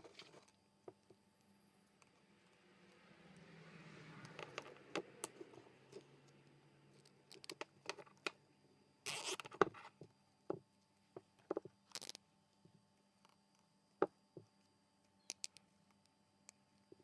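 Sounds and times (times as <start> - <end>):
soft whir: 0.0 - 9.0.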